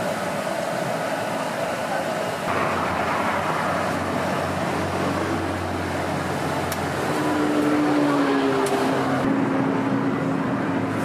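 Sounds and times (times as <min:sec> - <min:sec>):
road traffic: 0:00.0 - 0:11.0
low steady hum: 0:02.5 - 0:07.2.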